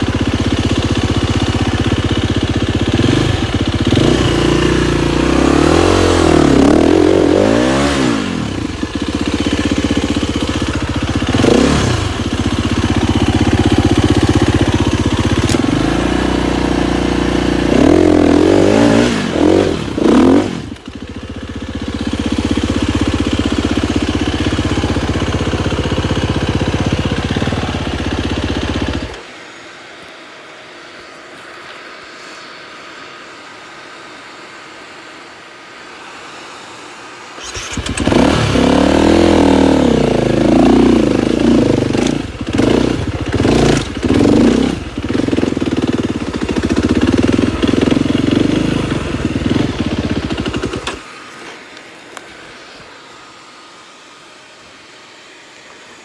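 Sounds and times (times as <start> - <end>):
dirt bike engine revving: 0.0 - 29.2, 37.4 - 51.1
faint hiss: 19.3 - 56.0.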